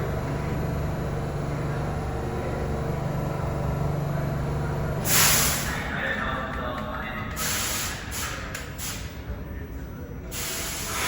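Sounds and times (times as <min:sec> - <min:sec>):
subway train motor hum: 0:00.0 - 0:11.0
loud air hiss: 0:05.0 - 0:05.8, 0:07.4 - 0:09.2, 0:10.3 - 0:11.0.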